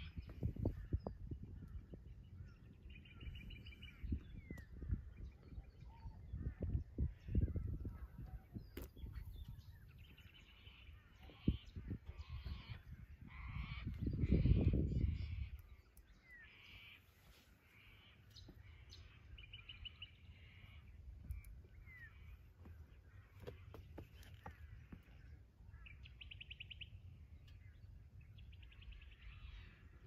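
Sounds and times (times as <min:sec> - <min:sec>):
birds harsh calls: 0:00.0 - 0:30.0.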